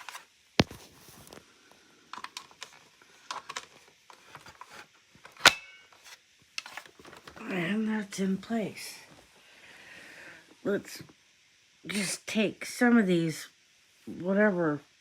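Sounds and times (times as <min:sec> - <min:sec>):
plastic parts clicking and knocking: 0:02.2 - 0:07.4.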